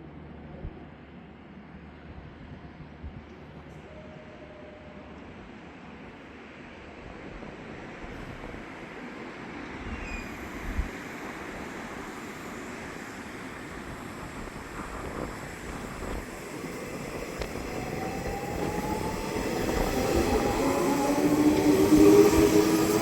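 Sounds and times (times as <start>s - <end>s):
train whine: 3.5s - 23.0s
electric train approaching: 8.6s - 23.0s.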